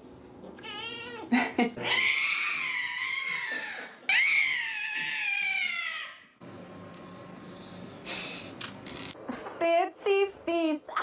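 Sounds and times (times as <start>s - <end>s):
cat meowing: 0.6s - 3.4s.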